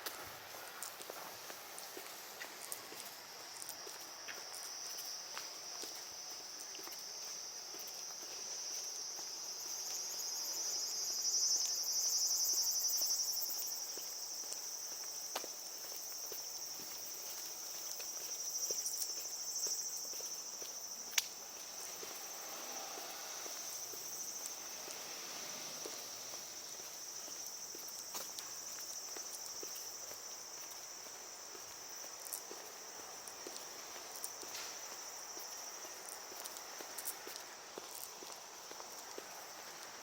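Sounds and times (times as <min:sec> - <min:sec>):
footsteps ticking: 0:00.0 - 0:10.1, 0:26.6 - 0:40.0
high-pitched insect drone: 0:06.7 - 0:33.0.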